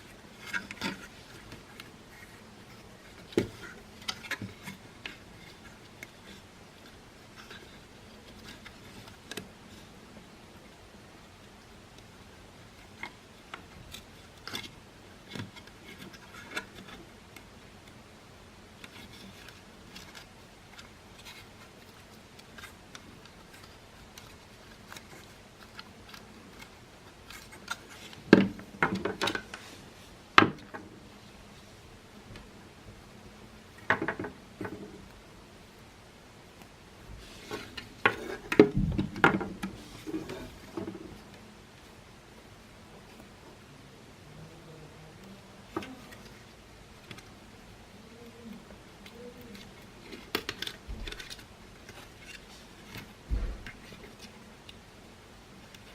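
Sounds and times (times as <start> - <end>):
plastic parts clicking and knocking: 18.8 - 29.6, 33.7 - 35.1, 37.5 - 41.3, 49.0 - 54.8.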